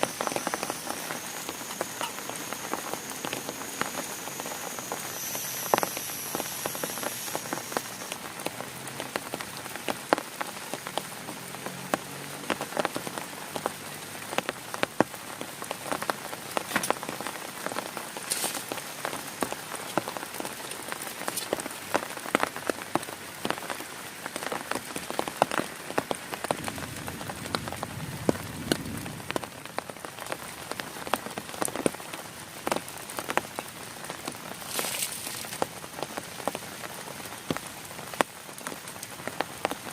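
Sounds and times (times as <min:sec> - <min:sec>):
heavy rain on a tent: 0:00.0 - 0:39.9.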